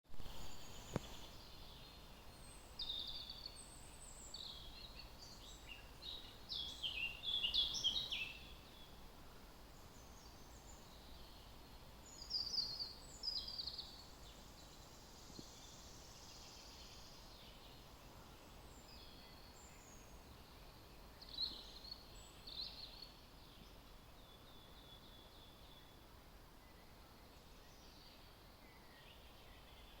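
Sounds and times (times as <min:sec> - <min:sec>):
faint steady hiss: 0:00.1 - 0:30.0
songbirds singing: 0:00.2 - 0:30.0.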